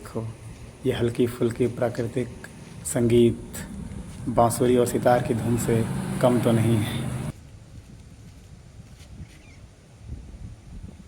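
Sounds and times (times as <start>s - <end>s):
wind rumble on microphone: 1.6s - 11.0s.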